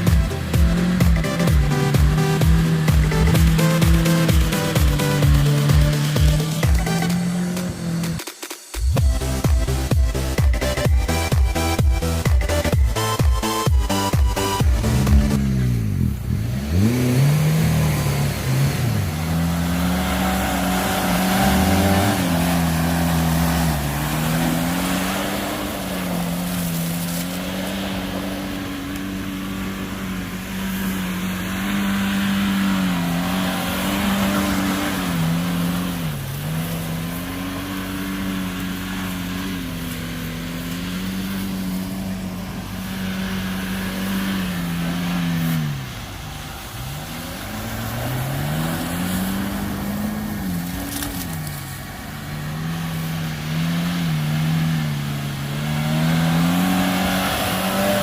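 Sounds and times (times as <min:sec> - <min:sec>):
engine running under load: 0:00.0 - 0:58.0.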